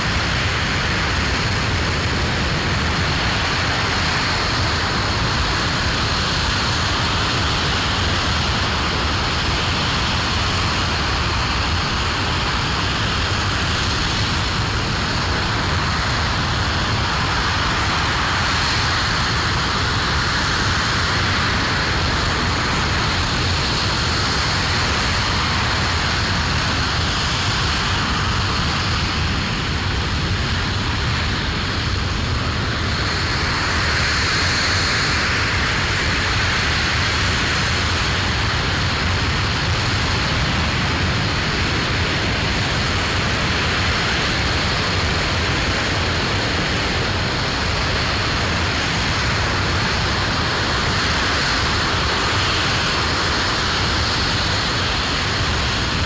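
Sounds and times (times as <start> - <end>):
rocket engine roaring: 0.0 - 56.0.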